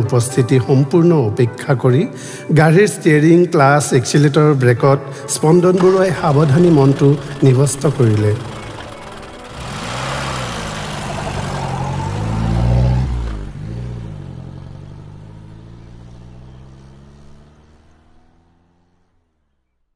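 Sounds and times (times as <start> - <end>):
car engine revving and pulling away: 5.7 - 19.7.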